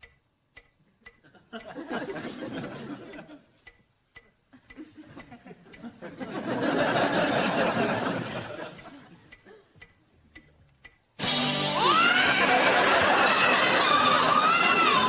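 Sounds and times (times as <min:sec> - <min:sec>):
clock ticking: 0:00.0 - 0:15.0
studio audience laughter: 0:01.6 - 0:03.4, 0:05.4 - 0:09.2, 0:11.8 - 0:15.0
music: 0:11.2 - 0:15.0.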